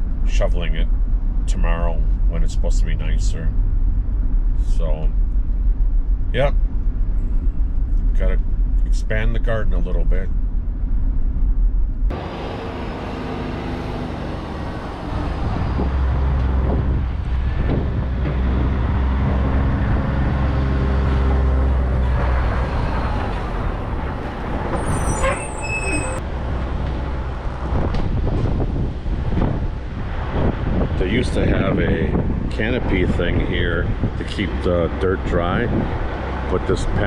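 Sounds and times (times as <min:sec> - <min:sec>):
vehicle engine running: 0:00.0 - 0:37.0
short high squeaks: 0:24.2 - 0:26.2.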